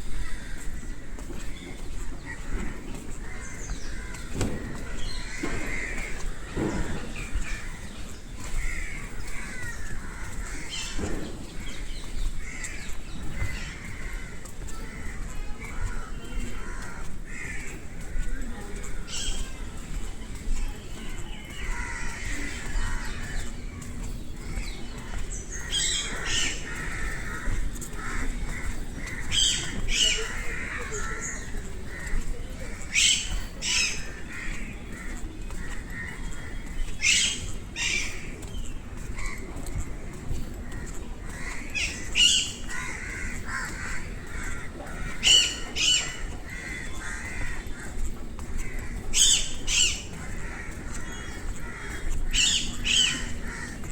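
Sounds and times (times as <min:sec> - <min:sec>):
birds chattering: 0:00.0 - 0:53.9
crow cawing: 0:08.6 - 0:11.0, 0:21.6 - 0:23.4, 0:25.5 - 0:32.2, 0:40.6 - 0:47.9, 0:48.6 - 0:53.8.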